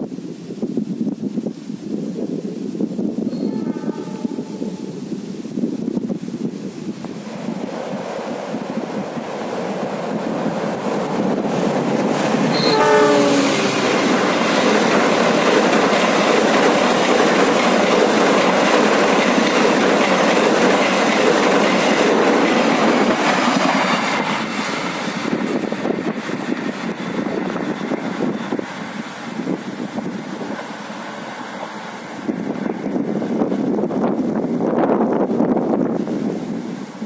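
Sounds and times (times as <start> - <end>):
train horn blast: 3.3 - 5.0, 12.5 - 13.9
train wheels clattering: 7.9 - 32.5.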